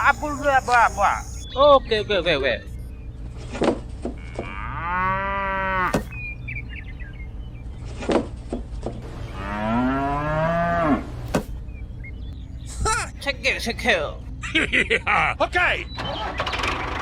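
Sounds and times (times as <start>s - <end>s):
steady low hum: 0.0s - 15.9s
cow mooing: 4.2s - 6.0s, 9.3s - 11.2s.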